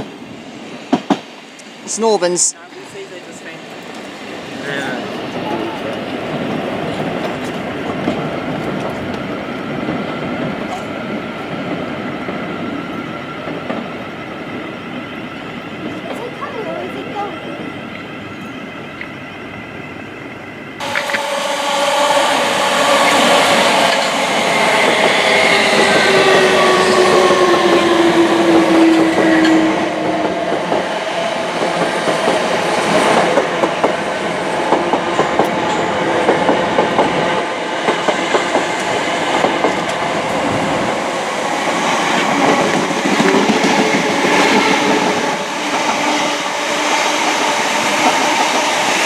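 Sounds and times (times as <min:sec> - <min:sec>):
rumble of wheels on rail: 0:02.6 - 0:49.0
train motor whine: 0:18.0 - 0:30.9.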